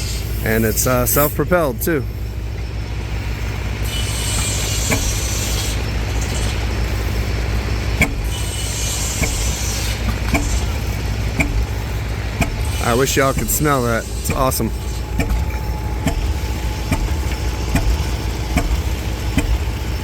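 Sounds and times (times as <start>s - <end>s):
engine droning: 0.0s - 20.0s
sharp engine knock: 4.2s - 5.6s, 8.0s - 19.9s.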